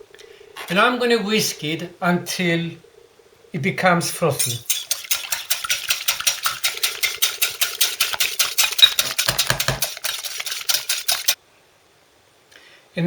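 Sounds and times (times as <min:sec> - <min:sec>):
whisk clicking against bowl: 0:04.4 - 0:11.4.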